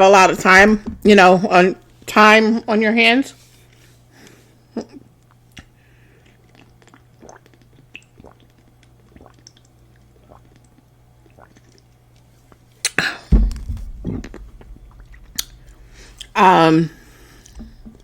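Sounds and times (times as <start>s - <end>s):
faint steady hum: 0.0s - 18.0s
soft chewing: 5.2s - 13.0s, 14.1s - 16.4s
bite with low thump: 13.3s - 15.4s
wet mouth clicks: 14.1s - 16.4s.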